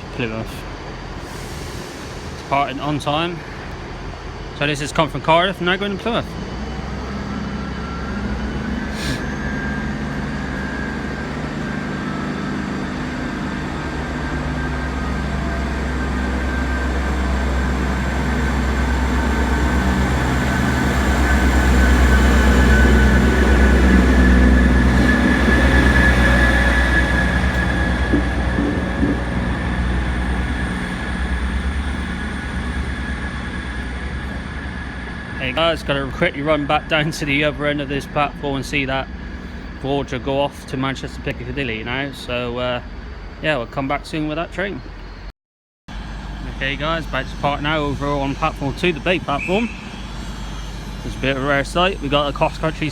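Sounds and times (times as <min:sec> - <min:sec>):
diesel train engine hum: 0:00.0 - 0:45.3, 0:45.9 - 0:52.9
wheels rolling on rails: 0:17.7 - 0:36.4.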